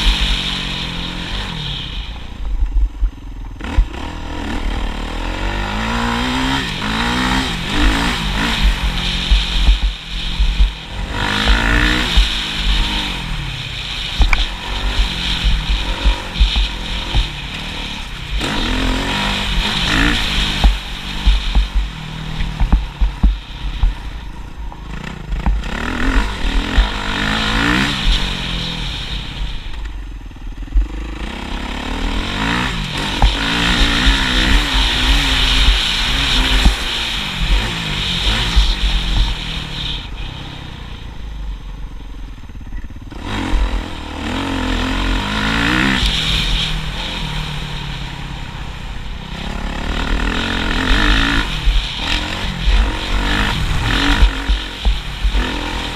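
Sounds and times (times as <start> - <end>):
rough low rumble: 0.0 - 39.8
motorcycle engine revving: 0.0 - 55.9.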